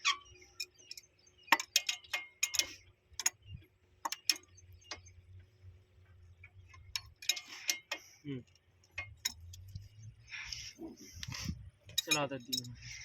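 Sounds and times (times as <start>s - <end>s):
tools and hardware clicking: 0.6s - 3.4s, 4.0s - 5.1s, 6.8s - 9.8s, 11.9s - 12.9s.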